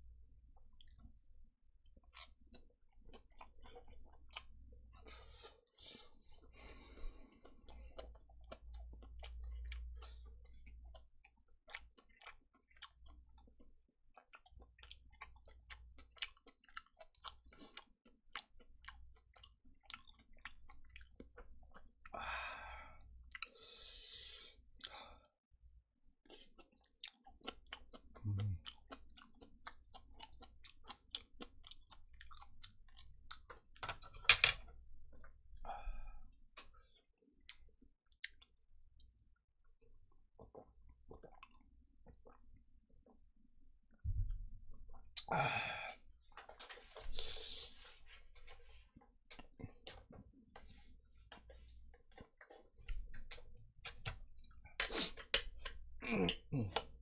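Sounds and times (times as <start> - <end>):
person chewing: 0.6 - 1.1, 1.9 - 22.2, 23.2 - 25.0, 26.2 - 43.2, 43.9 - 57.0
wet mouth clicks and smacks: 51.3 - 55.8.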